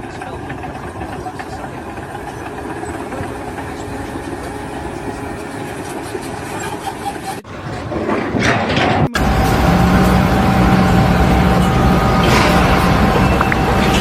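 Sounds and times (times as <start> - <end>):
engine running: 0.0 - 14.0
loud noise: 7.4 - 14.0.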